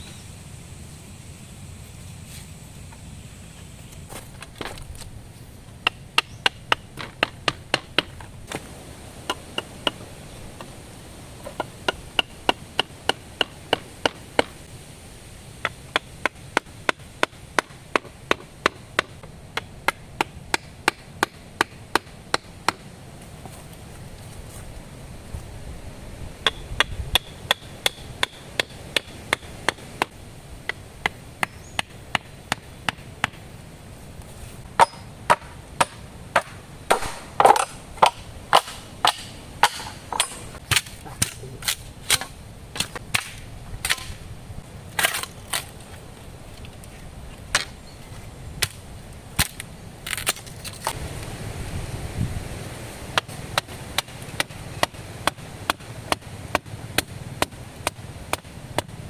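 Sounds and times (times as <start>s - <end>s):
wood chopping strikes: 5.8s - 10.0s, 34.8s - 44.2s, 53.1s - 59.0s.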